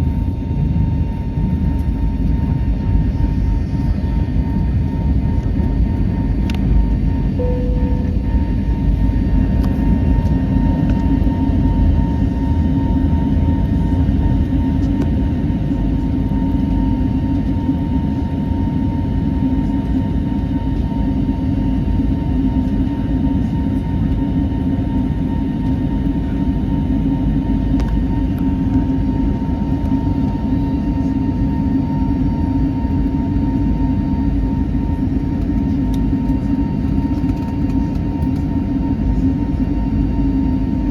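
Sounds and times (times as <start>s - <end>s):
jet engine and airflow rumble: 0.0s - 40.9s
thin steady whine: 1.3s - 19.6s.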